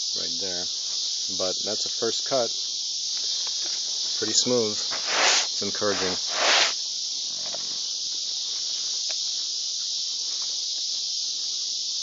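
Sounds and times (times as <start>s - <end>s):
insects chirring: 0.0s - 12.0s
faint ticks: 9.0s - 9.3s.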